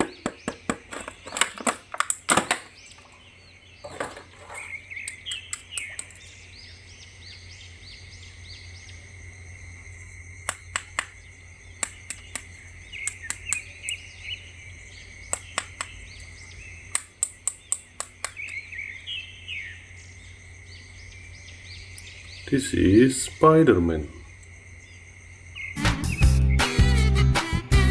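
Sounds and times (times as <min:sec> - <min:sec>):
birds chirping: 0:00.0 - 0:27.2
sharp clicks and taps: 0:05.0 - 0:06.2, 0:10.4 - 0:11.2, 0:11.8 - 0:14.0, 0:15.3 - 0:16.0, 0:16.9 - 0:18.6.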